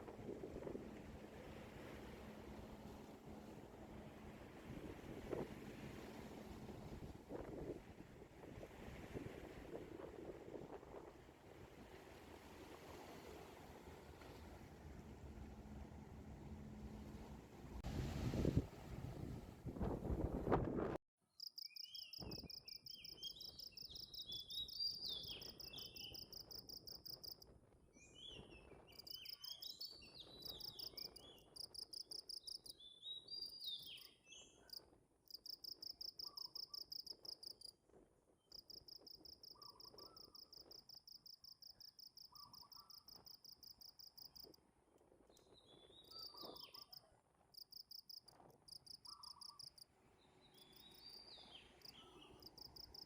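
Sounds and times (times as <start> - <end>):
insects chirping in trills: 47.6 - 49.8, 50.6 - 53.0.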